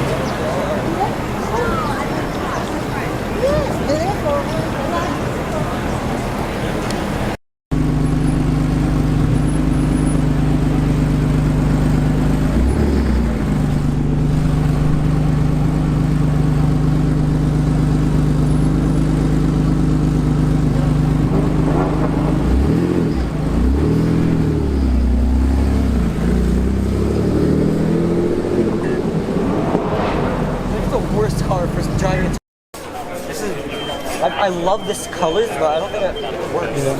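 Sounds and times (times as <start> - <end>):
sports car engine idling: 0.0 - 27.0
car engine revving: 0.0 - 32.4.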